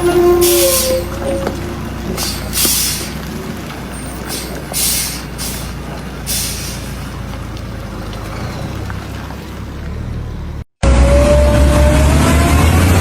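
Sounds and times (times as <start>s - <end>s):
diesel truck engine running: 0.0s - 13.0s
air brake hiss: 0.2s - 1.4s, 2.2s - 3.2s, 4.2s - 7.0s.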